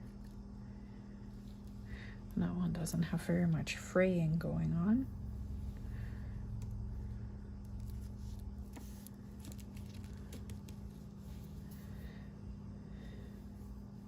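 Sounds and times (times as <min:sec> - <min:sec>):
steady low hum: 0:00.0 - 0:14.0
soft scratches of fabric and card: 0:06.9 - 0:12.0.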